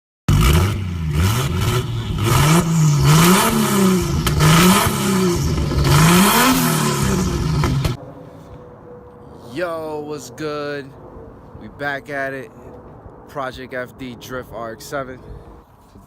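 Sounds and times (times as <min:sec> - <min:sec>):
car engine revving hard: 0:00.3 - 0:08.0.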